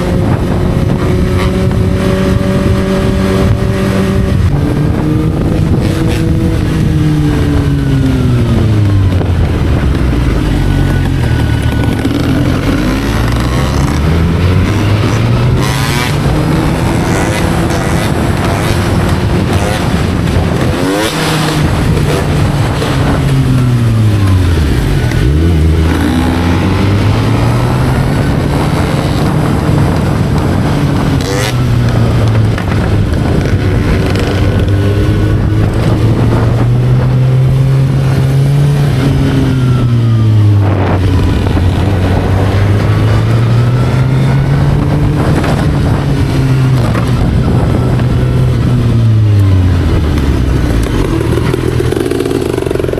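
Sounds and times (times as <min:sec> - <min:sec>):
motorcycle engine revving: 0:00.0 - 0:52.9
wind noise: 0:00.0 - 0:52.9.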